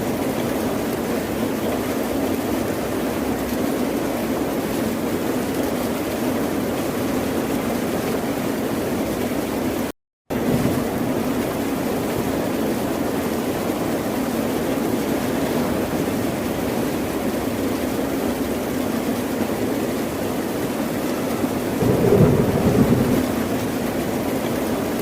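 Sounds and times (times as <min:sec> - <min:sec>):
ocean surf: 0:21.8 - 0:24.6.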